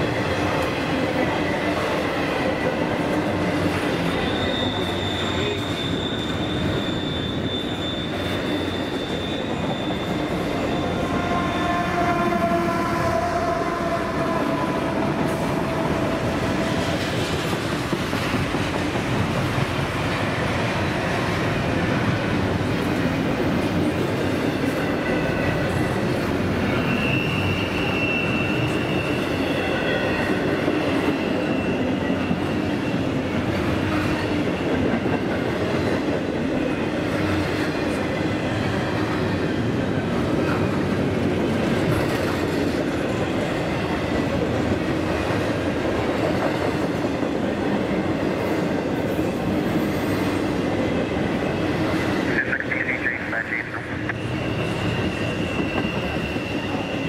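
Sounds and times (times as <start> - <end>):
train rumble and wheel clatter: 0.0 - 57.0
high wheel squeal: 3.9 - 14.6, 26.6 - 34.9, 51.5 - 57.0.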